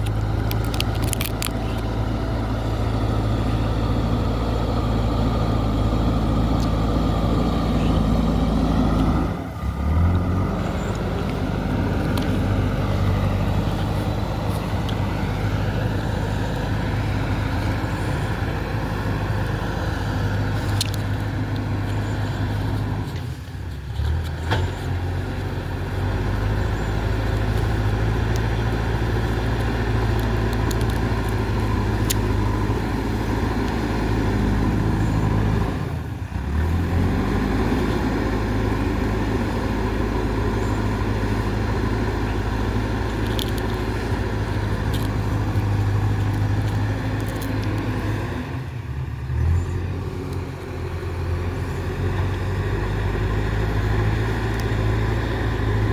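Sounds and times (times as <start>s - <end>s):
diesel engine running: 0.0s - 55.9s
faint sharp clicks: 50.2s - 50.5s.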